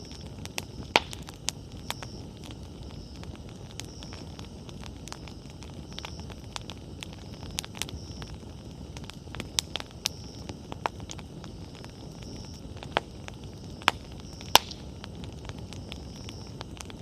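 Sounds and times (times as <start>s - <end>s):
bonfire crackling and popping: 0.0s - 17.0s.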